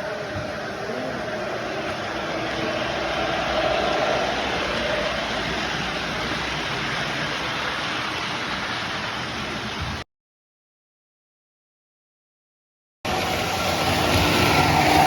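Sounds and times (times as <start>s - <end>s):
model trains rumbling: 0.0s - 10.0s, 13.1s - 15.0s.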